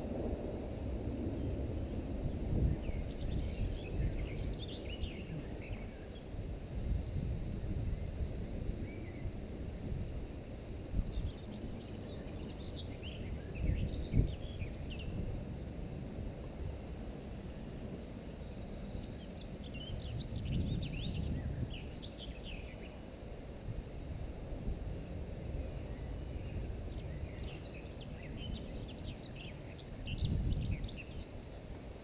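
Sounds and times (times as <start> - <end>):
wind rumble: 0.0 - 32.0
small birds chirping: 2.6 - 6.4, 11.0 - 15.2, 18.0 - 23.0, 25.7 - 31.4.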